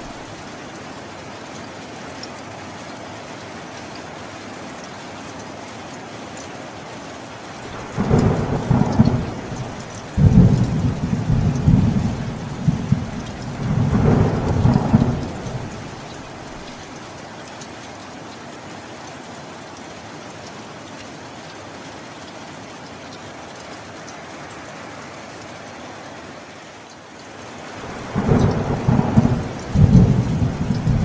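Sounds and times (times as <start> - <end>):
steady rain: 0.0 - 31.0
thunder rolling: 7.7 - 16.7, 27.9 - 31.0.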